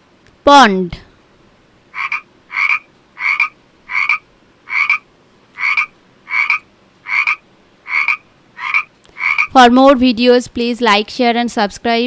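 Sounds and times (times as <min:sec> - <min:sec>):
frog croaking: 0:01.9 - 0:09.6.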